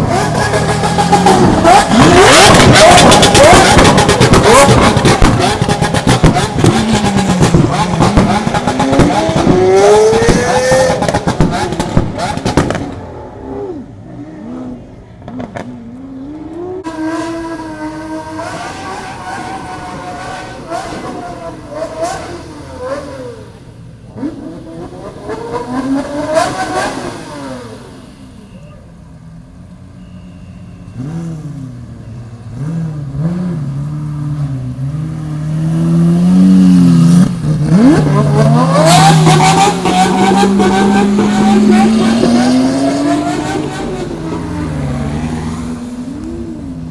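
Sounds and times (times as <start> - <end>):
car engine revving: 0.0 - 28.6, 30.9 - 46.9
engine pops: 0.1 - 13.0.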